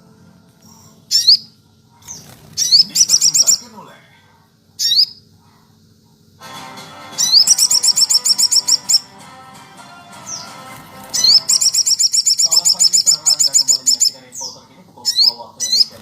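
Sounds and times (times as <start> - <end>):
music: 0.0 - 1.1, 6.4 - 12.0
songbird singing rapid trills: 1.1 - 3.7, 7.2 - 9.0, 11.0 - 16.0.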